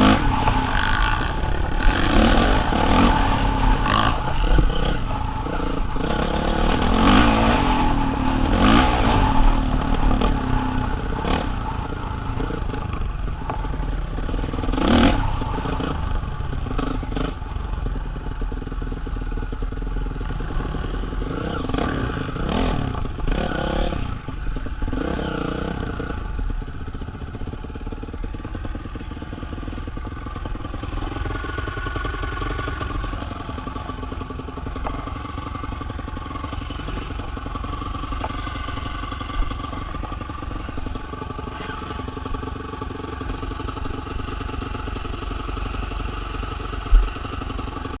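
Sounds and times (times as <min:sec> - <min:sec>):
vehicle engine revving: 0:00.0 - 0:17.7.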